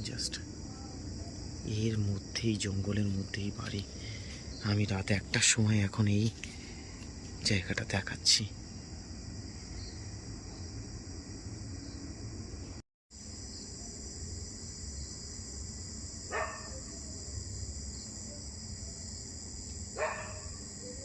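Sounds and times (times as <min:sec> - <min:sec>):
crickets and insects chirping: 0:00.0 - 0:21.0
distant dog bark: 0:16.3 - 0:17.0, 0:20.0 - 0:20.6.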